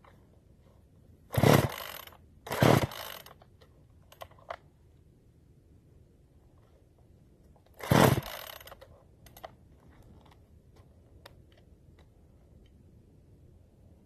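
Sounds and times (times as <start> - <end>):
chainsaw engine turning over: 1.3 - 3.4, 7.8 - 9.4
chainsaw starter cord pull: 1.3 - 3.4, 7.8 - 9.5.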